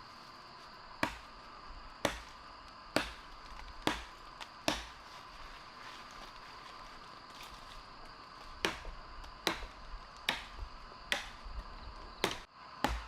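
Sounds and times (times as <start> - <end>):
machete chopping wood: 1.0 - 1.4, 2.0 - 5.0, 8.6 - 11.5, 12.2 - 13.0.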